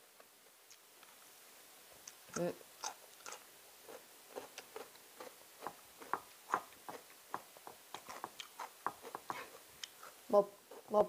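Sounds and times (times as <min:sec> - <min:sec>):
person chewing: 0:02.0 - 0:07.2, 0:07.8 - 0:10.9.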